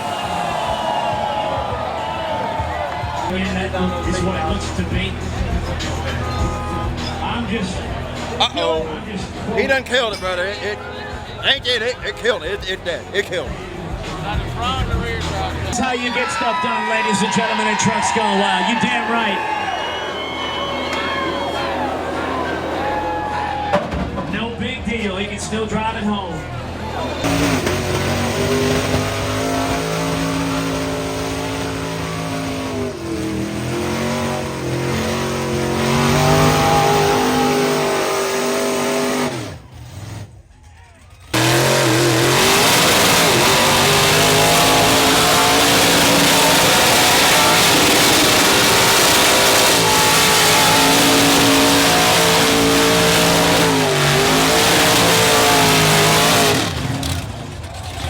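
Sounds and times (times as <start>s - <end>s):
truck engine revving: 0.0s - 16.1s, 16.9s - 58.0s.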